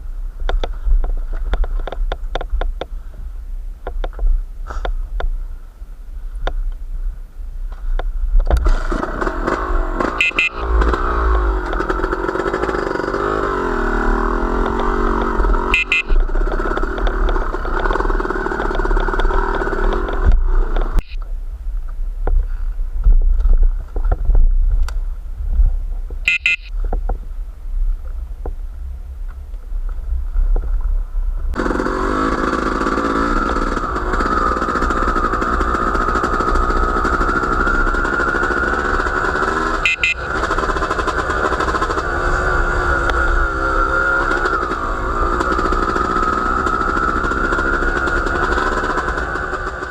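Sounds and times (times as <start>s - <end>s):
wind rumble on microphone: 0.0s - 8.8s, 15.2s - 31.6s
small engine running: 8.6s - 21.0s, 31.6s - 49.9s.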